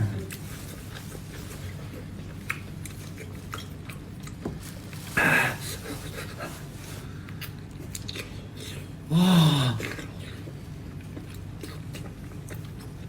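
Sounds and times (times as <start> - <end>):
mouth clicks of chewing: 2.3 - 4.4, 7.3 - 8.7.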